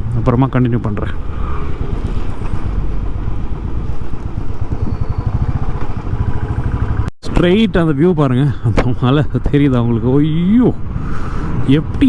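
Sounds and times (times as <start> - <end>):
wind buffeting microphone: 1.1 - 7.1
motorcycle engine running: 1.9 - 7.1.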